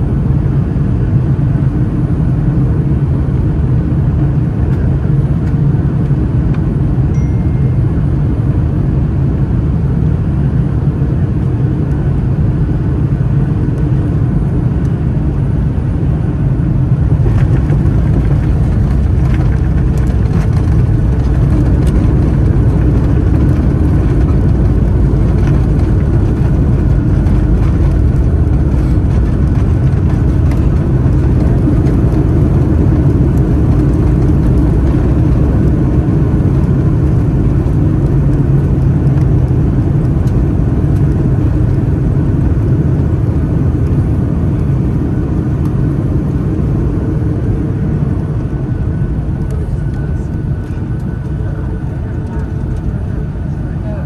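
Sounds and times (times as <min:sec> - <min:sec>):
airplane engines and airflow rumble: 0:00.0 - 0:54.0
knocks and rattles in cabin: 0:17.1 - 0:35.7.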